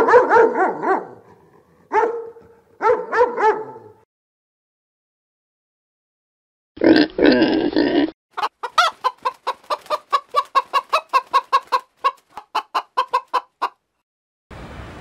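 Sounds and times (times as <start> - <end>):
chicken clucking: 8.4 - 13.8.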